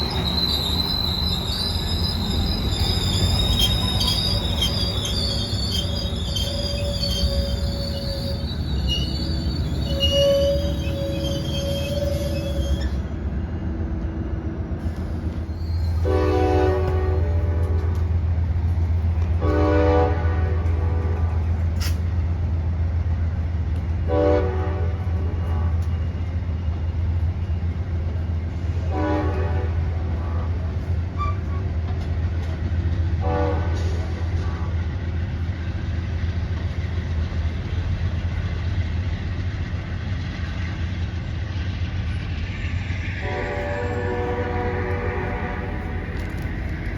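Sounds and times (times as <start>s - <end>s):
low rumble of train: 0.0s - 46.9s
train horn blasts: 16.0s - 18.2s, 19.4s - 21.5s, 24.1s - 26.0s, 28.8s - 30.5s, 33.2s - 34.8s, 43.2s - 46.4s.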